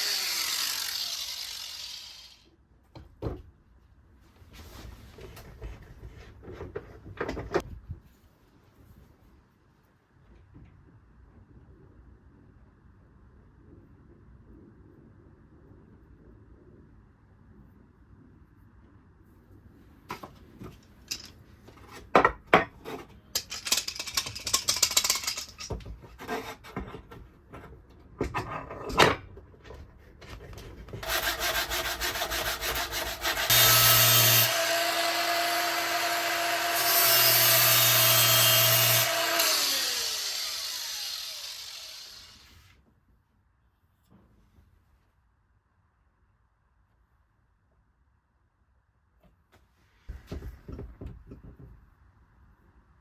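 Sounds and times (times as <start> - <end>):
angle grinder grinding steel: 0.0 - 2.5, 31.0 - 42.7.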